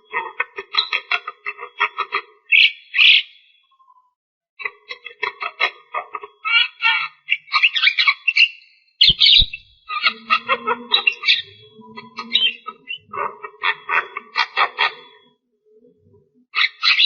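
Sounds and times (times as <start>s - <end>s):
myna singing chattering notes: 9.1s - 13.2s.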